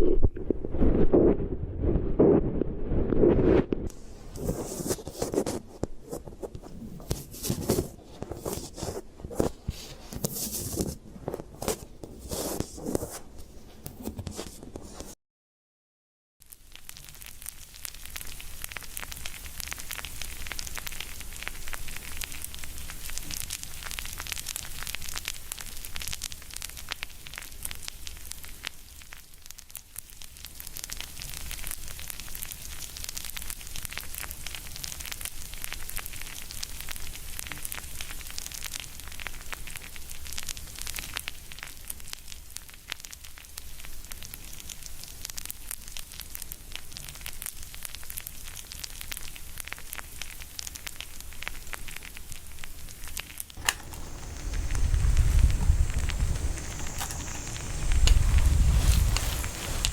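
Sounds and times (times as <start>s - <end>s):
close chewing crackles: 16.5s - 59.9s.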